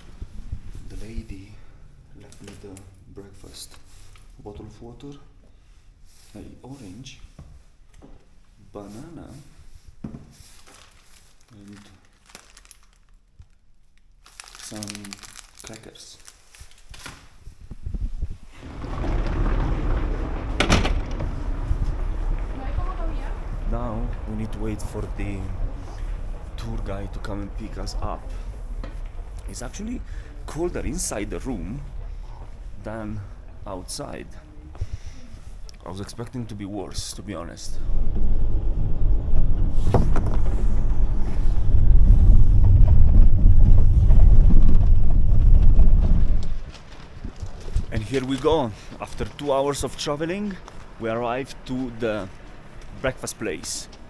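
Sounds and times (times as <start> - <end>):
low rumble: 17.5 - 54.0
door shutting knock: 18.6 - 23.6.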